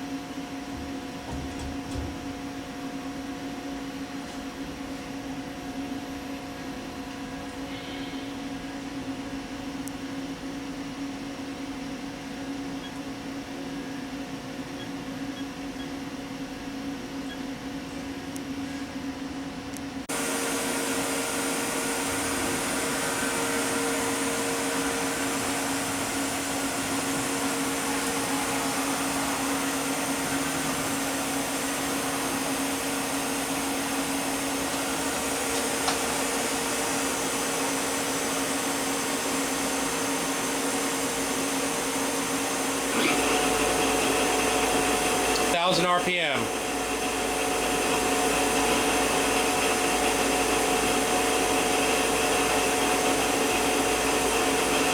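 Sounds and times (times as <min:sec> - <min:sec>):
machine hum: 0:20.0 - 0:54.9
machine whirring with hiss: 0:20.0 - 0:54.9.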